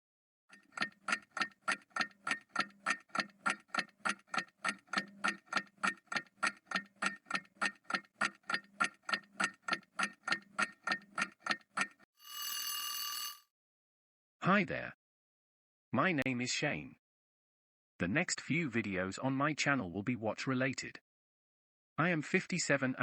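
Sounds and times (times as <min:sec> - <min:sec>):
clock ticking: 0:00.5 - 0:12.0.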